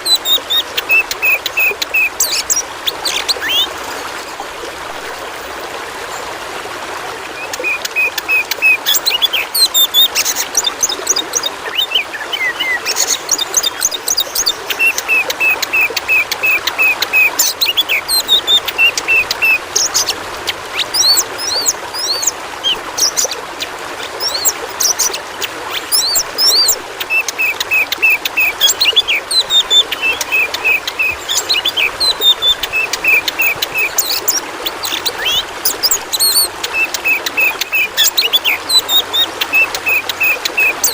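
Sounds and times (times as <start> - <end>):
bird singing whistled phrases: 0.0 - 3.7, 7.4 - 20.1, 25.9 - 40.9
running water: 0.0 - 40.9.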